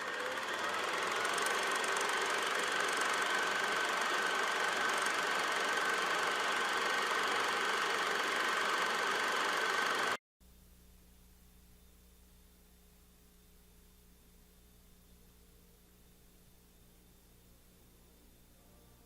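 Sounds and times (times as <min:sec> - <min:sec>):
machine running with high whine: 0:00.0 - 0:10.2.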